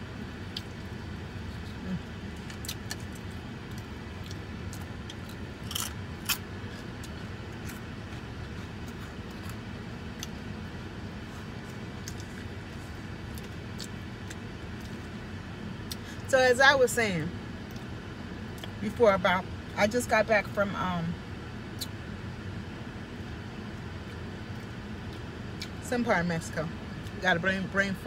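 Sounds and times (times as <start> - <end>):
steady low hum: 0.0 - 28.0
chewing and crunching: 0.2 - 16.1, 23.8 - 25.8.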